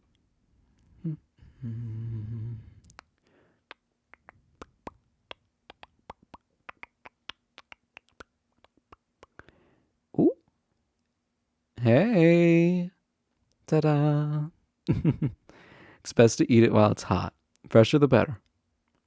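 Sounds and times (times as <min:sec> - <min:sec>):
man humming: 0:01.0 - 0:03.0.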